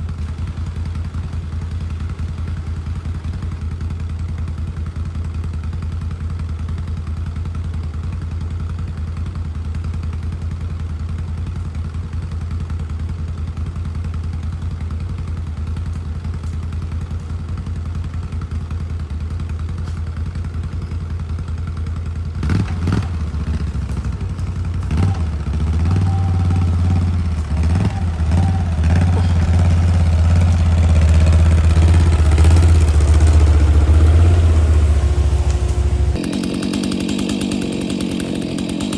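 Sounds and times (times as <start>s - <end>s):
chainsaw engine running: 0.0s - 38.9s
chainsaw clattering: 13.6s - 38.9s.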